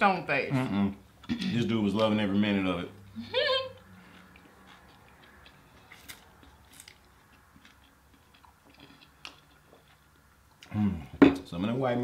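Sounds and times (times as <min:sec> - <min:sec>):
chewing food: 0:03.8 - 0:10.8.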